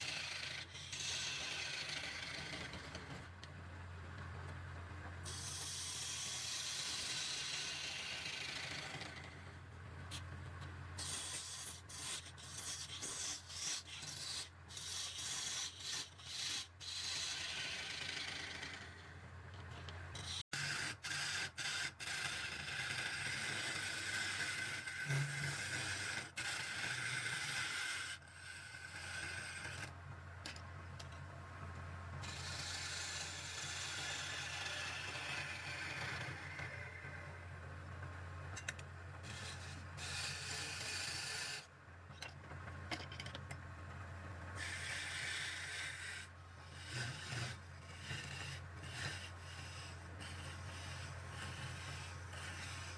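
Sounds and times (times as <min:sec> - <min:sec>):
tool cutting spinning wood: 0:00.0 - 0:03.3, 0:05.3 - 0:09.5, 0:20.2 - 0:30.0, 0:44.6 - 0:52.9.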